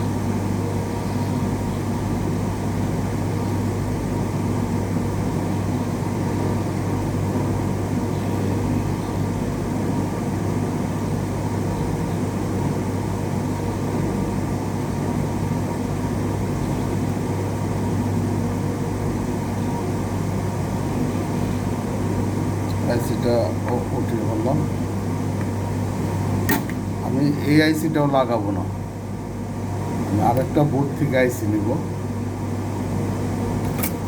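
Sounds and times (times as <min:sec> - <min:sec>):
low electrical hum: 0:00.0 - 0:34.0
hot air blower hissing: 0:12.4 - 0:34.0.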